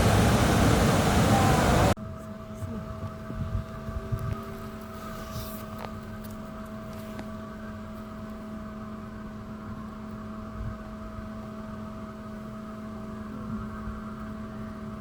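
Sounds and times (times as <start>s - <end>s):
low rumble: 0.0s - 2.0s.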